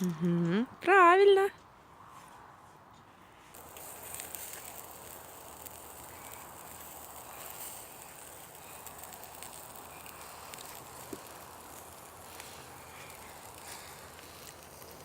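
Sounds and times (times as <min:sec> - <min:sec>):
wood fire crackling faintly: 0:03.5 - 0:15.0.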